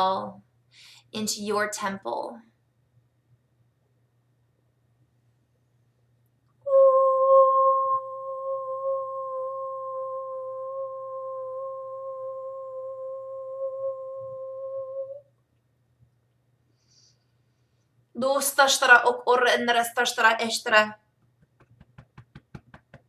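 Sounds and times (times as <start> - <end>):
woman humming a steady note: 6.7 - 15.2.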